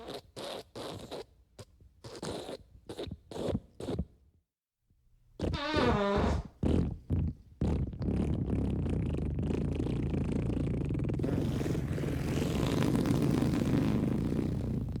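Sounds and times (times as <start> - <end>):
long fart sound: 5.4 - 15.0.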